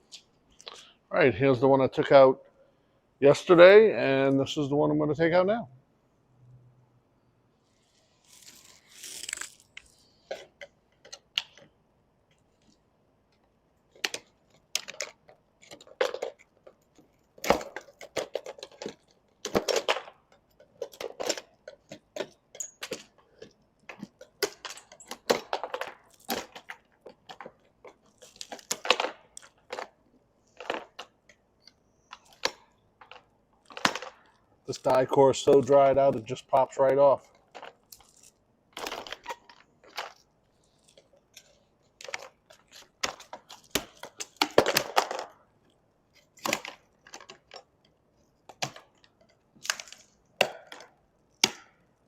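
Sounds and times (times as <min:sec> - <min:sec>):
brittle sealant scraped and cracking: 0:07.8 - 0:11.7, 0:13.9 - 0:36.3.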